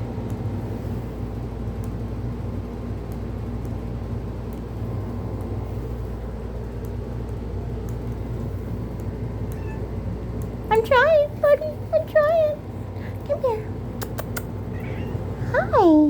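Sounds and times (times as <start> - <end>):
low mechanical hum: 0.0 - 16.0
faint clicks: 6.8 - 8.3, 8.9 - 9.6, 14.0 - 14.9.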